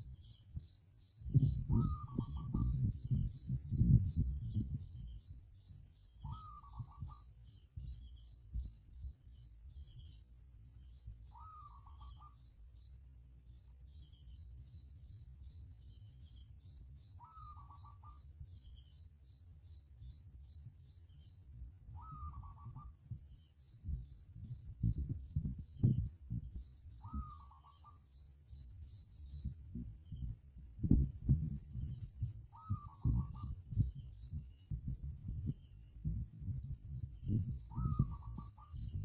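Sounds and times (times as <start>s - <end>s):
low rumble: 0.0s - 11.2s, 23.1s - 27.4s, 28.2s - 39.0s
birds chirping: 0.0s - 39.0s
low bird call: 1.3s - 5.1s, 6.0s - 8.8s, 11.2s - 12.6s, 17.1s - 18.6s, 21.9s - 31.1s, 31.8s - 39.0s.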